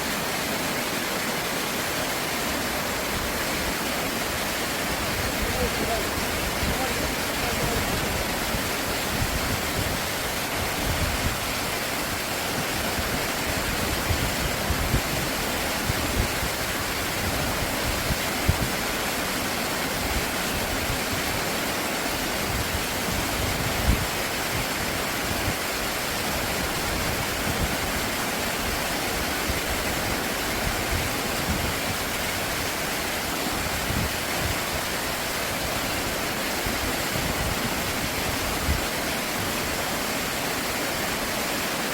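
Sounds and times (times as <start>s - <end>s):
stream rushing over rocks: 0.0s - 41.9s.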